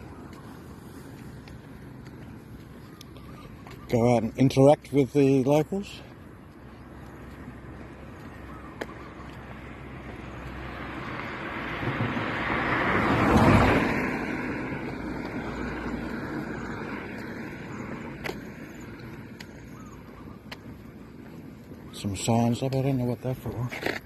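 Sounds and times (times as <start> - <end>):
vehicle engine passing: 6.8 - 21.7.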